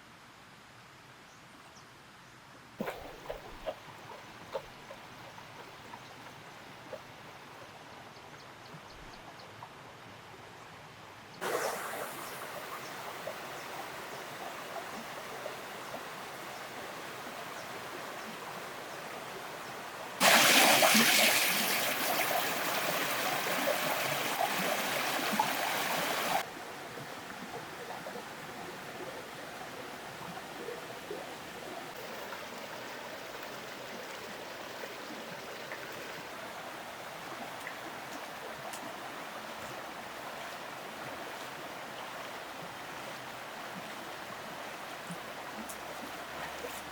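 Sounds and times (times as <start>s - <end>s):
strong rush of water: 11.4s - 17.9s, 18.8s - 26.5s
water running: 20.2s - 26.4s.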